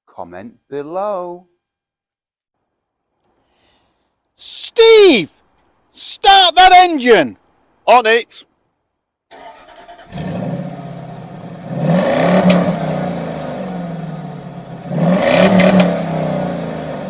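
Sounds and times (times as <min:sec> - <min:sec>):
car engine revving: 0:09.3 - 0:17.0
car engine starting and idling: 0:09.3 - 0:17.0.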